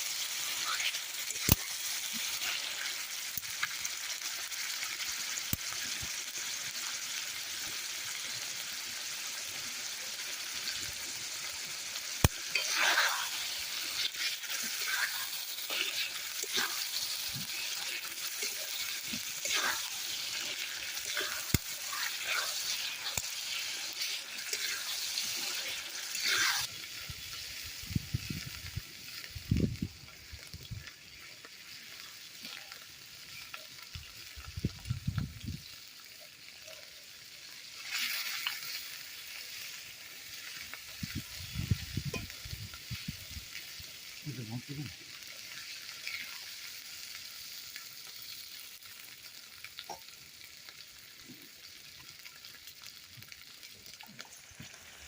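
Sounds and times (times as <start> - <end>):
food sizzling in hot oil: 0.0 - 55.0
spatula scraping a pan: 12.4 - 26.7.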